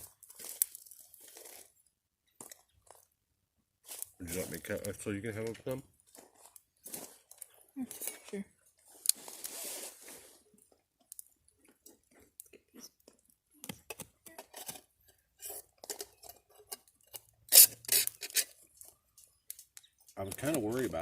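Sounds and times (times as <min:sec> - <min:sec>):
crunching of food being cut and eaten: 0:00.0 - 0:03.1, 0:08.8 - 0:21.0.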